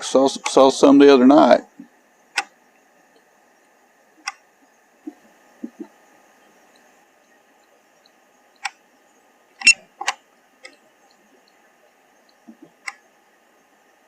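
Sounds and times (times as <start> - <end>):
faint electronic hum: 0.0 - 14.0
sharp clicks: 4.2 - 4.4, 9.6 - 10.8.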